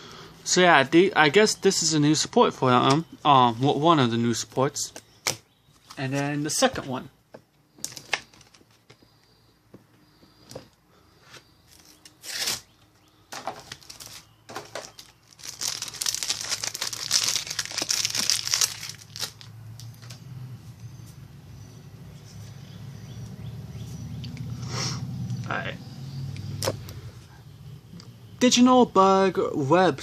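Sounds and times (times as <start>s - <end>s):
foil wrapper tearing and crinkling: 7.8s - 8.7s, 11.8s - 12.7s, 13.6s - 20.1s.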